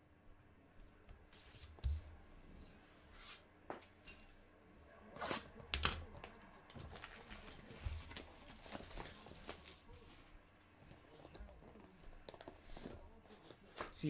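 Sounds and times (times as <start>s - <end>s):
card pack wrapper tearing: 6.2s - 10.0s.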